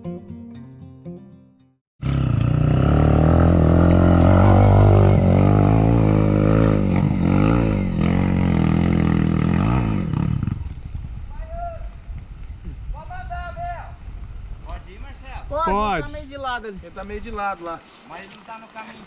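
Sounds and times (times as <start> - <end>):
motorcycle engine revving: 2.0 - 11.1.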